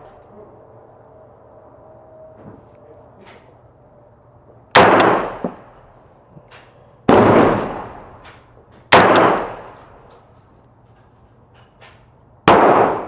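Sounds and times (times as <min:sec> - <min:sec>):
loud sharp rifle shots: 0:04.7 - 0:05.7, 0:07.1 - 0:08.2, 0:08.9 - 0:09.7, 0:12.4 - 0:13.0.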